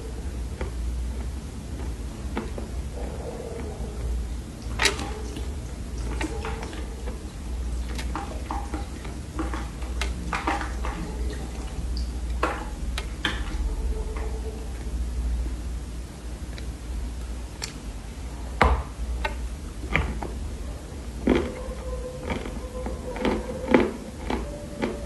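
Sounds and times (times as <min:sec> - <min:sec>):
steady low hum: 0:00.0 - 0:25.0
dry clay being chewed: 0:00.2 - 0:04.1, 0:21.1 - 0:25.0.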